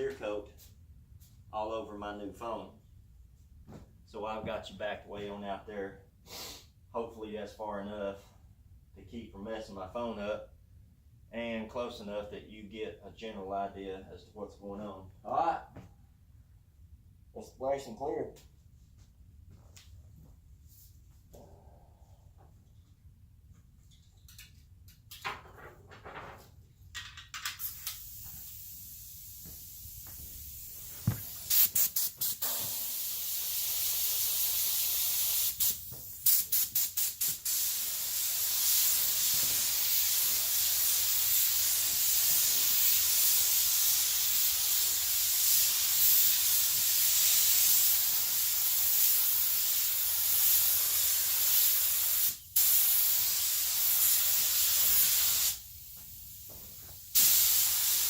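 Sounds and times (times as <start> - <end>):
paint spray gun hissing: 27.6 - 58.0.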